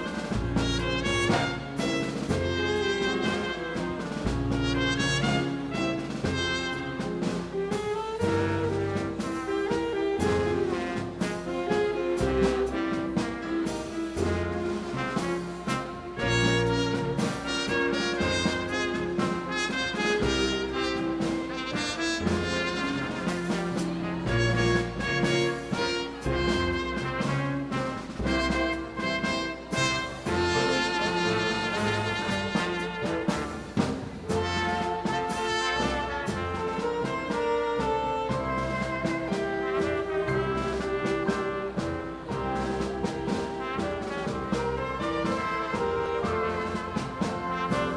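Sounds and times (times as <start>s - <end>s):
bass and percussion beat: 0.0s - 47.9s
saxophones: 0.0s - 47.9s
trombones: 0.0s - 47.9s
trumpets: 0.0s - 47.9s
dance band playing latin music: 23.7s - 26.7s.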